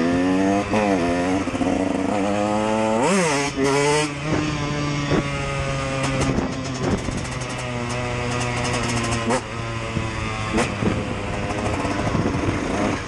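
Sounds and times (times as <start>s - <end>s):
engine crackles: 4.2s - 13.0s.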